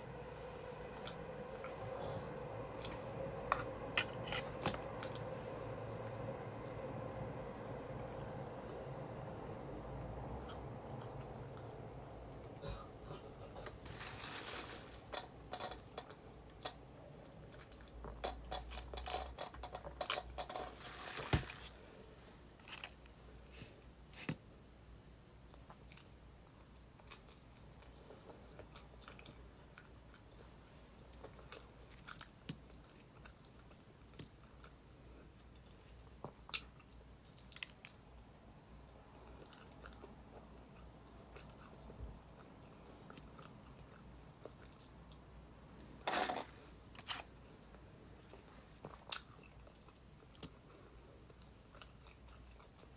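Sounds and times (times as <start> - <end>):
person chewing crunchy food: 39.1 - 45.3, 46.9 - 52.9.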